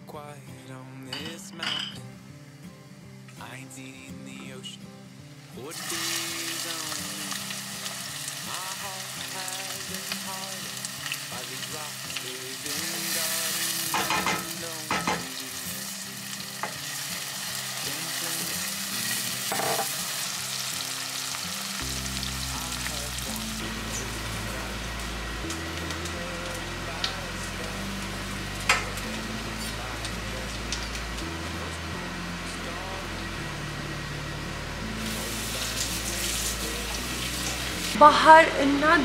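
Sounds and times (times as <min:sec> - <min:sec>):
onion sizzling in pot: 0:04.4 - 0:39.0.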